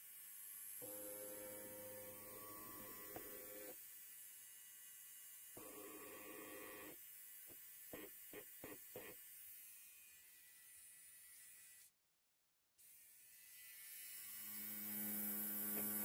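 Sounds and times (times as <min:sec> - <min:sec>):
electric hair clipper buzzing: 0:00.8 - 0:03.8, 0:05.6 - 0:07.0, 0:12.8 - 0:16.0.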